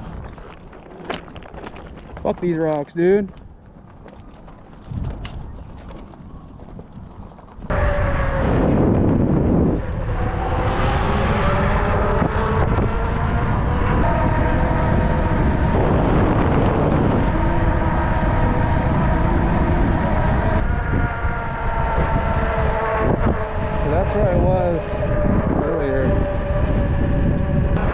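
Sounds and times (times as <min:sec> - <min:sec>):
wind rumbling on microphone: 0:00.0 - 0:27.9
electric bike motor whining: 0:11.2 - 0:27.9.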